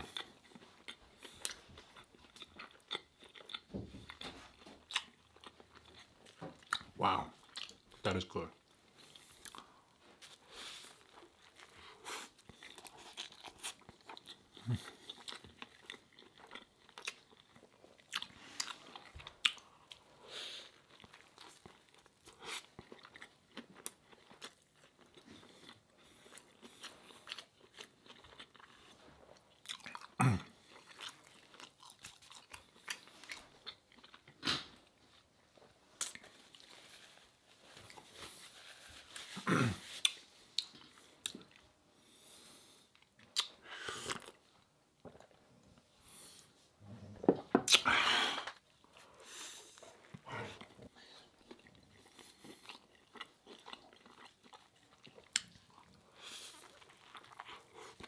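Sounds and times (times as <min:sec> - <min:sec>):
wet mouth clicks: 0:47.7 - 0:47.9.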